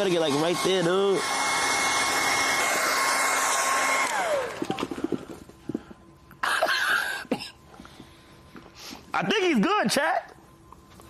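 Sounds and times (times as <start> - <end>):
hair dryer blowing: 0.0 - 4.8.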